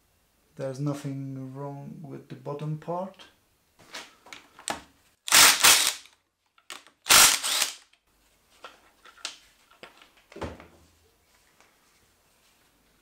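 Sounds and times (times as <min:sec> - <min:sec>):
ratchet wrench clicking: 0:07.1 - 0:07.8.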